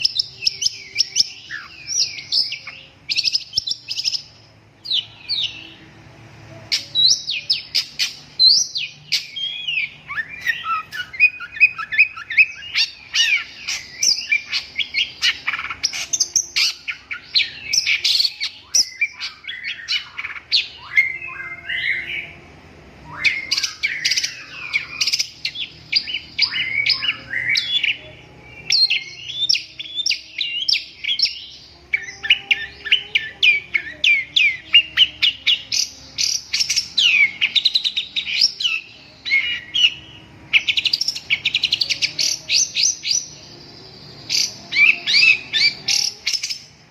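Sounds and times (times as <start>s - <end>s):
bird singing chattering song: 0.0s - 46.9s.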